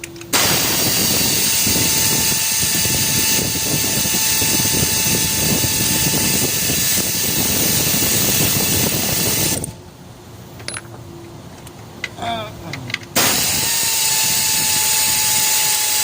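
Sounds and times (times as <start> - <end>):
mechanical running noise with hiss: 0.2 - 9.8, 13.2 - 16.0.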